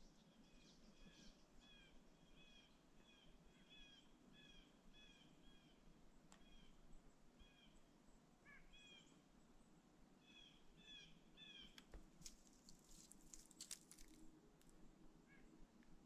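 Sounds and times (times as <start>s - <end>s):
faint sharp clicks and crackles: 11.7s - 14.8s.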